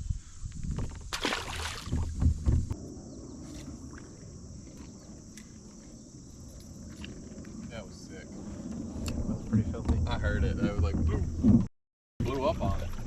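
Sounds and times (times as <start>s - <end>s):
water splash: 1.1s - 2.2s
steady low water rush: 1.2s - 10.9s, 12.2s - 13.0s.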